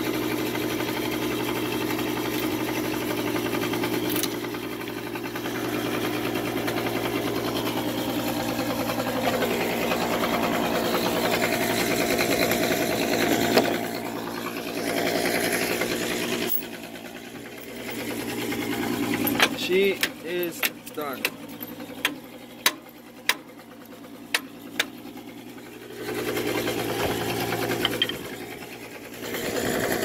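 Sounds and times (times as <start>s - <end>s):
portable generator running: 1.1s - 30.0s
angle grinder cutting steel: 10.9s - 16.8s.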